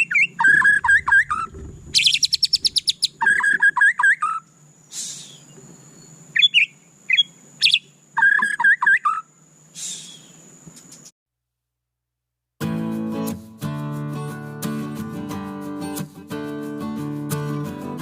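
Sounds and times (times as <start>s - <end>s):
bird singing whistled notes: 0.0s - 11.0s.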